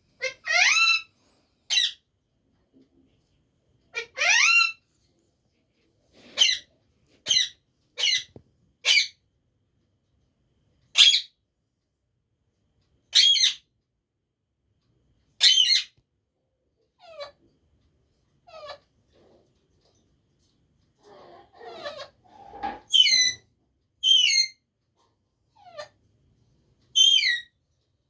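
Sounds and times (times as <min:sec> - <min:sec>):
parrot calling: 0:00.2 - 0:01.1, 0:01.7 - 0:02.0, 0:03.9 - 0:04.8, 0:06.4 - 0:09.2, 0:11.0 - 0:11.3, 0:13.1 - 0:13.6, 0:15.4 - 0:16.0, 0:17.0 - 0:17.4, 0:21.1 - 0:23.4, 0:24.0 - 0:24.6, 0:25.6 - 0:25.9, 0:27.0 - 0:27.5.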